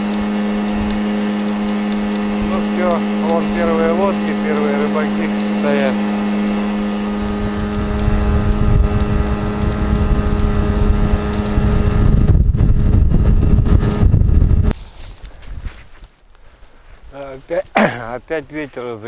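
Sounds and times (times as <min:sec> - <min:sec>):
motorboat engine running: 0:00.0 - 0:14.1
wind rumble on microphone: 0:00.0 - 0:16.0.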